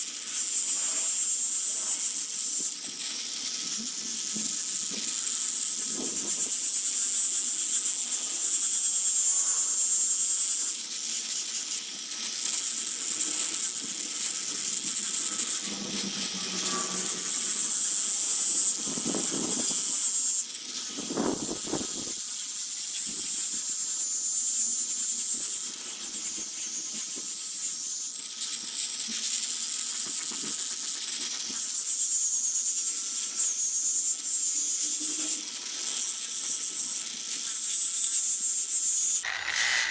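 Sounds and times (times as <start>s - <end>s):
power tool whining on wood: 0.4s - 22.2s, 38.8s - 39.9s.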